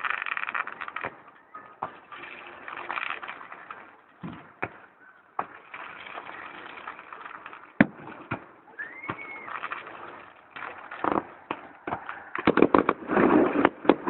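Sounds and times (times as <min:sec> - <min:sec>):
fireworks crackling: 0:00.0 - 0:14.0
sharp firework bang: 0:11.0 - 0:14.0.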